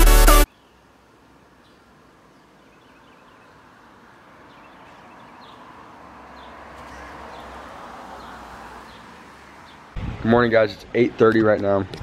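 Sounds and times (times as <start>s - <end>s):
low rumble: 10.0s - 10.5s.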